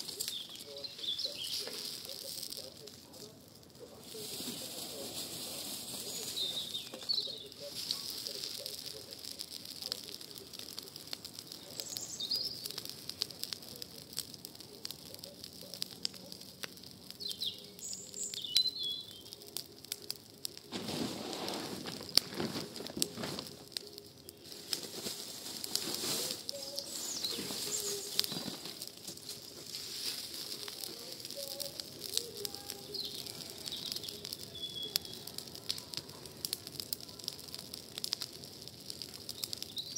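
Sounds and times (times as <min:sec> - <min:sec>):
birds chirping: 0:00.0 - 0:09.4, 0:10.0 - 0:13.5, 0:14.6 - 0:20.2, 0:21.8 - 0:25.2, 0:26.2 - 0:29.5, 0:30.2 - 0:35.6, 0:39.2 - 0:39.9
campfire crackling and popping: 0:00.0 - 0:39.9
fire rushing: 0:00.0 - 0:39.9.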